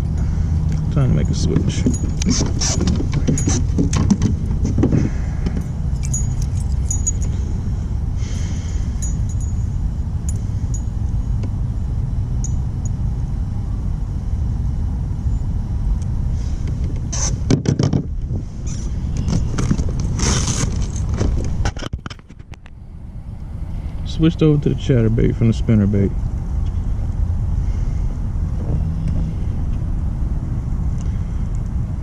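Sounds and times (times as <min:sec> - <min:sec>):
wind buffeting microphone: 0:00.0 - 0:12.8, 0:26.4 - 0:32.0
fishing tackle clinking: 0:05.5 - 0:07.4, 0:08.8 - 0:11.0.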